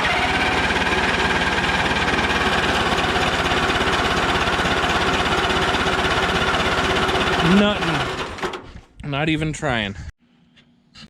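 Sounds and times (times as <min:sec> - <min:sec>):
tractor engine cranking by starter: 0:00.0 - 0:08.7.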